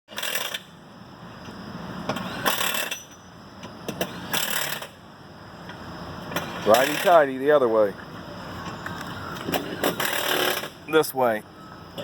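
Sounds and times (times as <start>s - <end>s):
pneumatic impact wrench bursts: 0.1s - 0.8s, 2.1s - 3.2s, 3.8s - 5.0s, 6.3s - 7.2s, 9.5s - 10.9s.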